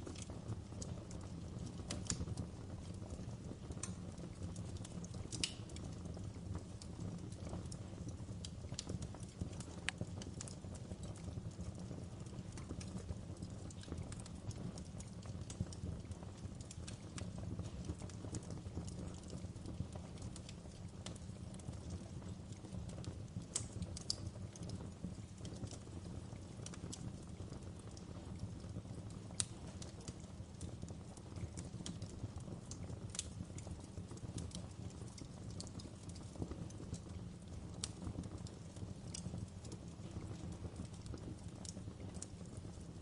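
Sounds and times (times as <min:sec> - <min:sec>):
fire snapping and popping: 0:00.0 - 0:43.0
flames burning: 0:00.0 - 0:43.0.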